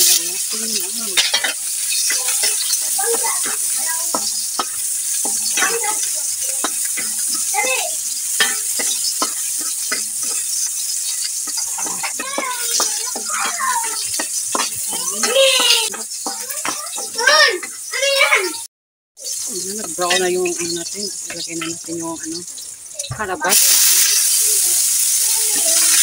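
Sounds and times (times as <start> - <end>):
wooden spatula scraping wok: 0.0 - 18.1
garlic sizzling in hot oil: 0.0 - 26.0.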